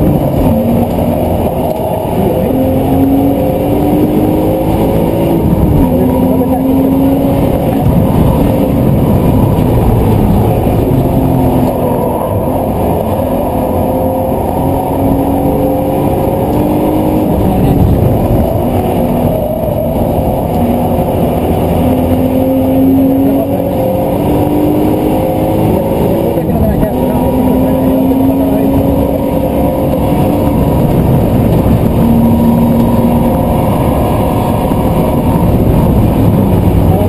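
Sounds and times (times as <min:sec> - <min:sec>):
muffled engine accelerating: 0:00.0 - 0:37.0
road and wind noise: 0:00.0 - 0:37.0.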